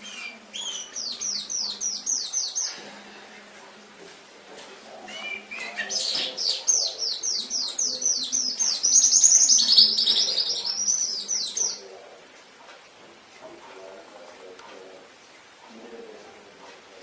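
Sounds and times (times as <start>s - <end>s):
canary singing: 0.0s - 2.8s, 5.0s - 11.9s.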